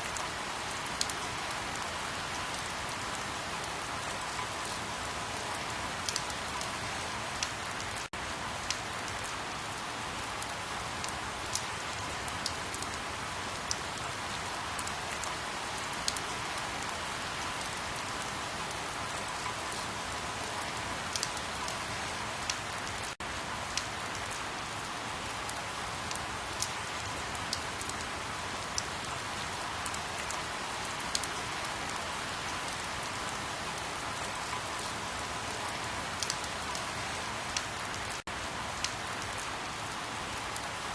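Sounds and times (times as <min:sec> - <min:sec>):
steady rain: 0:00.0 - 0:40.9
raindrop ticks: 0:06.0 - 0:06.4, 0:08.7 - 0:09.3, 0:21.1 - 0:21.4, 0:36.2 - 0:36.8.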